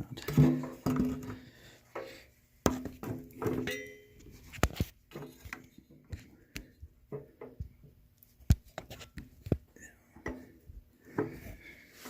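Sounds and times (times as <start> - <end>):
tools and parts clinking: 3.4 - 4.3.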